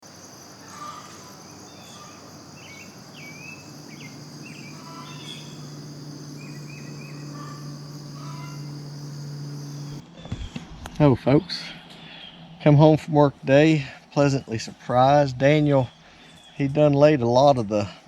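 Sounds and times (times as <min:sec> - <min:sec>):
insect chorus trilling: 0:00.0 - 0:10.6, 0:11.3 - 0:18.0
low steady hum: 0:00.1 - 0:18.0.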